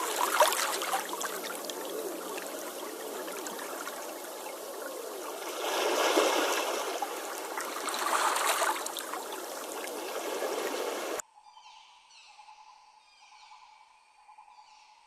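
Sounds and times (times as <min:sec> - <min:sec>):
stream water trickling: 0:00.0 - 0:11.2
faint bird chirps: 0:11.3 - 0:15.0.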